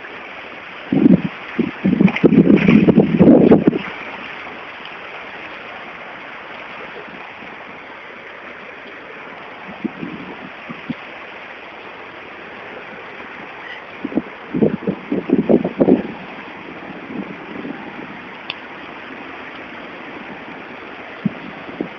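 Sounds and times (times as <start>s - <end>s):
heavy rain: 0.0s - 21.9s
running floodwater: 0.0s - 21.9s
low bumps: 0.9s - 4.5s.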